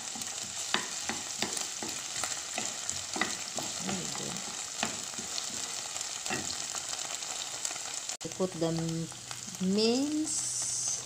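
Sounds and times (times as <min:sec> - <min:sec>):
onion sizzling in hot oil: 0:00.0 - 0:11.0
wooden spoon knocking a pan: 0:00.1 - 0:05.7.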